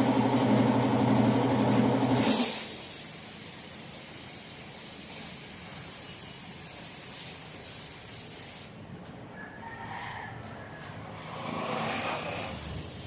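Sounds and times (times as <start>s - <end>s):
paint spray gun hissing: 0.0s - 0.6s, 2.2s - 8.8s, 12.4s - 13.0s.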